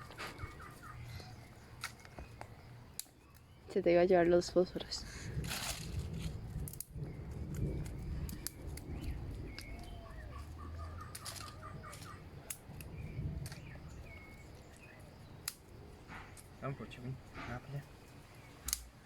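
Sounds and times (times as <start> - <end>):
birds chirping: 0.0 - 5.4, 6.0 - 19.0
twigs and leaves rustling: 0.0 - 19.0.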